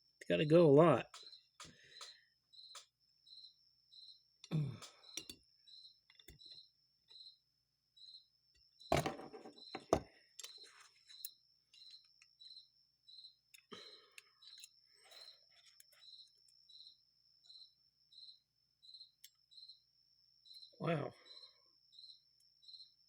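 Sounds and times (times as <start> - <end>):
cricket chirping: 0.0 - 23.0
small metal parts clicking: 13.5 - 14.8.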